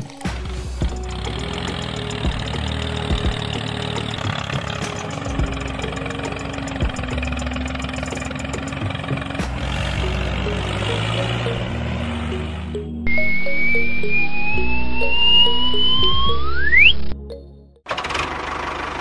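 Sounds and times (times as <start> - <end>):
small engine idling: 0.3 - 12.7, 17.9 - 19.0
hum shifting pitch: 1.0 - 17.6.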